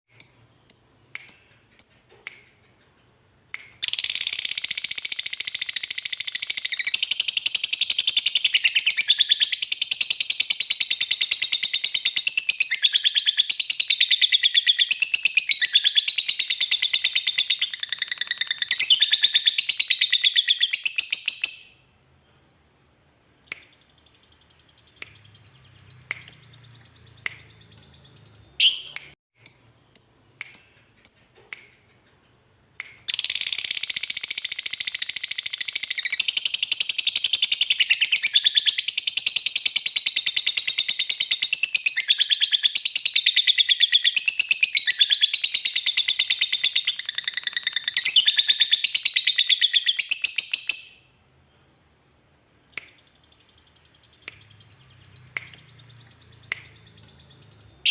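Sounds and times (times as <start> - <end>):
lovebird chirps: 0.1 - 2.4, 3.5 - 32.0, 32.8 - 57.9
lovebird chattering trill: 41.5 - 57.9.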